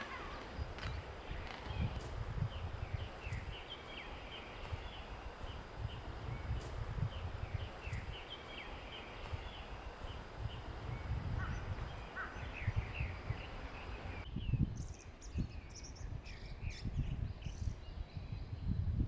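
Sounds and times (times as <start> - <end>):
low rumble: 0.0 - 15.0
birds chirping: 0.0 - 18.5.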